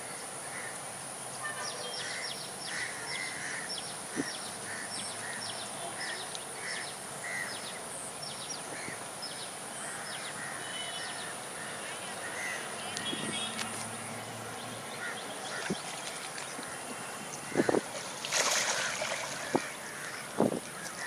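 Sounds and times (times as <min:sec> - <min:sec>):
wetland birds calling: 0:14.5 - 0:21.0.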